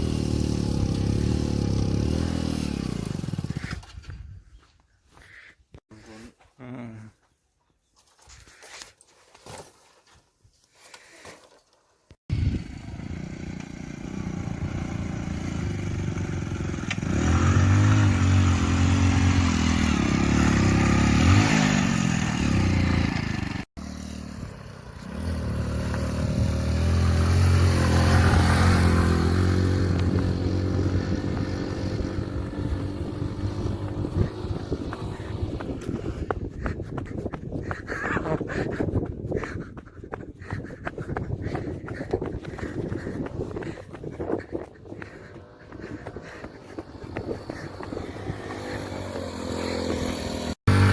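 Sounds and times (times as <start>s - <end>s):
motorcycle engine revving: 0.0s - 4.0s, 12.3s - 38.7s, 41.3s - 50.9s.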